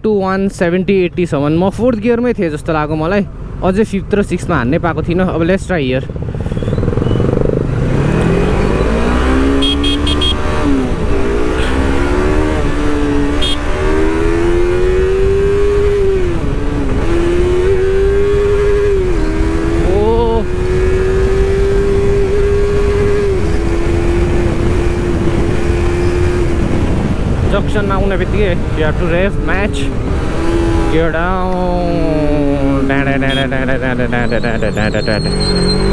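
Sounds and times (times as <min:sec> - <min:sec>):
motorcycle accelerating and upshifting: 0:02.8 - 0:35.9
wind rumble on microphone: 0:10.5 - 0:32.8.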